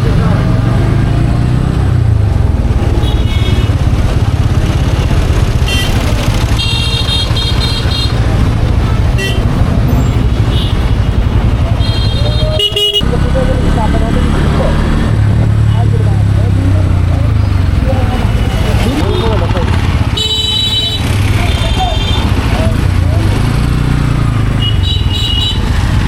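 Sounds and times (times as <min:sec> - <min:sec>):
motorcycle engine running: 0:00.0 - 0:26.0
wind and road noise: 0:00.0 - 0:26.0
vehicle horn: 0:03.0 - 0:03.8, 0:05.6 - 0:08.2, 0:09.1 - 0:10.9, 0:11.8 - 0:13.1, 0:20.1 - 0:22.4, 0:24.6 - 0:25.7.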